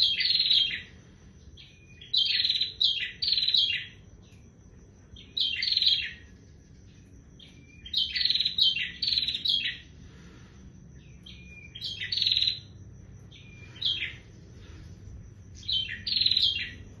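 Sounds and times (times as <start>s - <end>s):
bird chirping rapidly: 7.5s - 9.9s, 11.1s - 12.7s, 15.6s - 16.8s.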